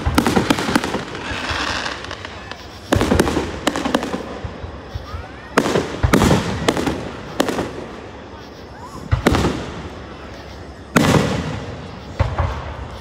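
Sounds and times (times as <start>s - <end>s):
firework shells booming: 0.0s - 4.6s, 10.9s - 13.0s
firework crackling: 0.0s - 13.0s.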